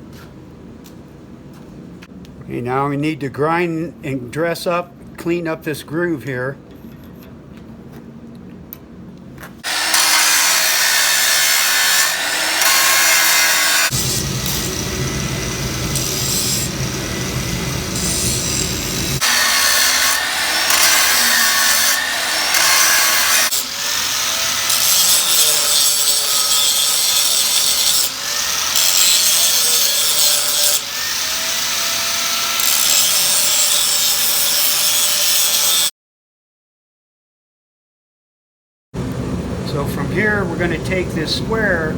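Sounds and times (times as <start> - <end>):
power grinder grinding metal: 9.6 - 35.9.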